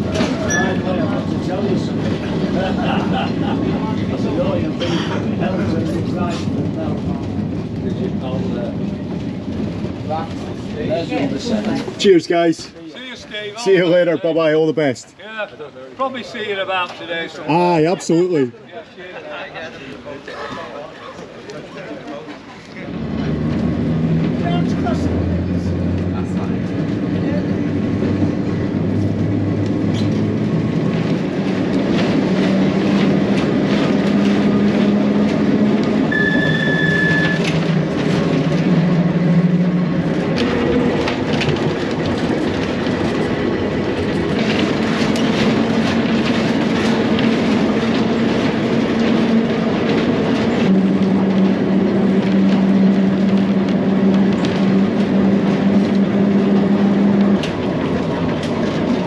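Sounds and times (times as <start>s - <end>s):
wheels rumbling on rail: 0.0s - 59.0s
brief high tone: 0.5s - 0.8s, 36.1s - 37.5s
clicks over rail joints: 37.1s - 59.0s.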